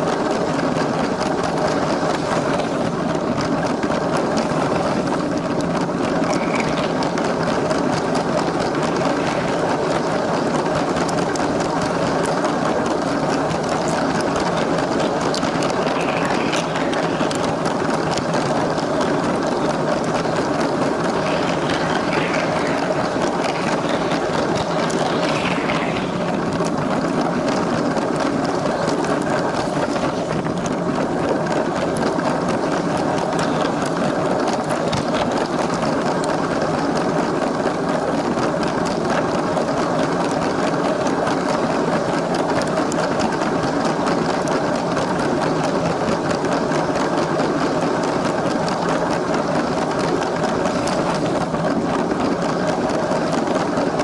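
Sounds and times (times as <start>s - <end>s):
wheels rattling on plastic track: 0.0s - 54.0s.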